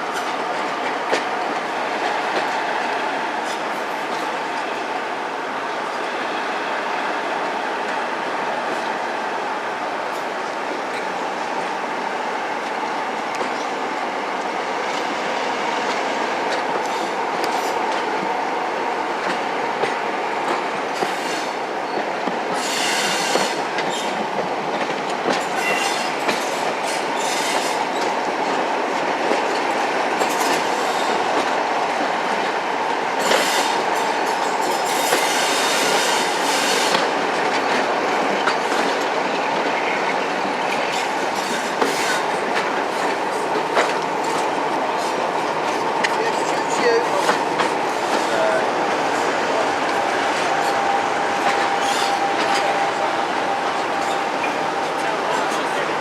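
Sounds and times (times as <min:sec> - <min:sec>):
wheel squeal and hiss: 0:22.6 - 0:24.0
diesel train droning: 0:42.3 - 0:56.0.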